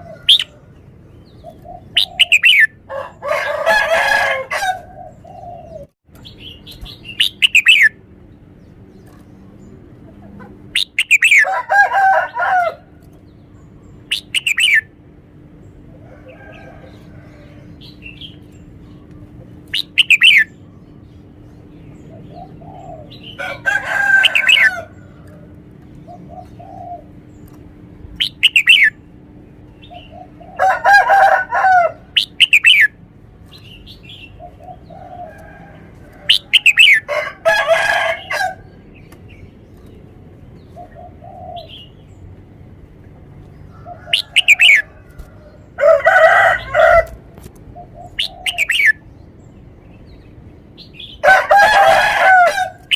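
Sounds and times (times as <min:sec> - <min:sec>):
bulbul singing: 0:00.0 - 0:02.9, 0:05.0 - 0:11.5, 0:13.0 - 0:15.8, 0:17.6 - 0:23.6, 0:24.2 - 0:37.1, 0:43.6 - 0:47.1, 0:47.7 - 0:51.9.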